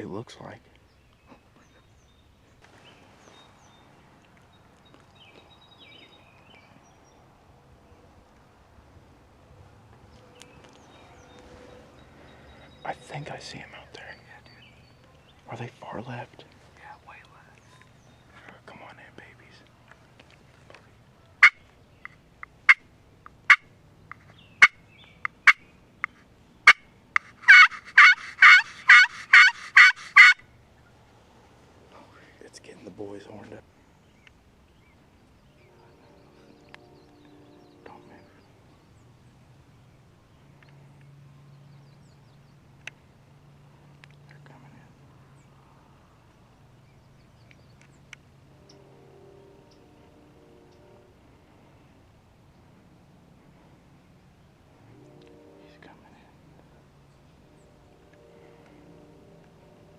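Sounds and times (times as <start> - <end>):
songbird chirps and calls: 0.0 - 8.5, 10.0 - 31.0, 31.9 - 43.1, 43.8 - 52.8
turkey clucks and yelps: 27.4 - 30.4.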